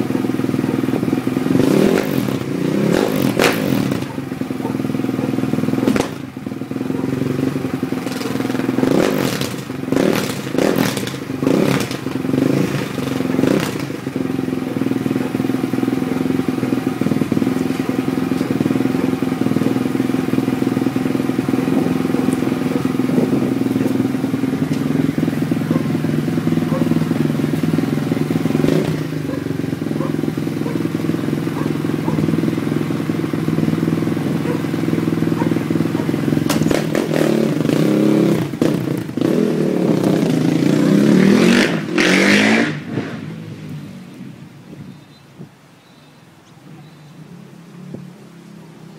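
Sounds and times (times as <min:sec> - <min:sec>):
motorcycle engine blipping: 0:00.0 - 0:37.7
motorcycle engine running steadily: 0:00.0 - 0:48.9.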